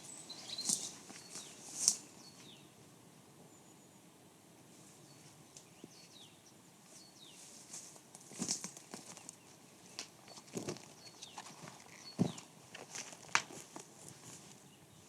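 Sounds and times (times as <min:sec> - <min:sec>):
small birds calling: 0:00.0 - 0:02.8, 0:05.0 - 0:07.7, 0:08.4 - 0:12.6.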